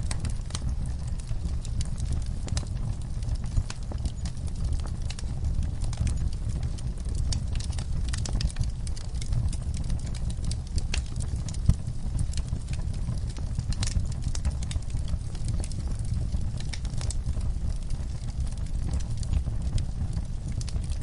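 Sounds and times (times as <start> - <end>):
low rumble of flame: 0.0 - 21.0
wood fire crackling and popping: 0.0 - 21.0.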